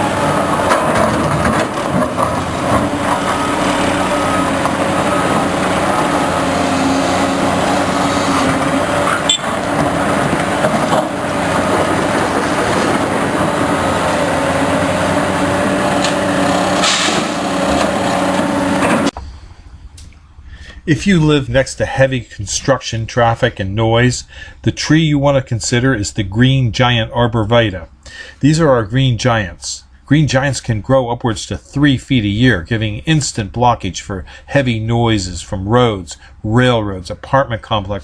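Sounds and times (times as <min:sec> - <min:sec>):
heavy diesel machinery running: 0:00.0 - 0:19.2.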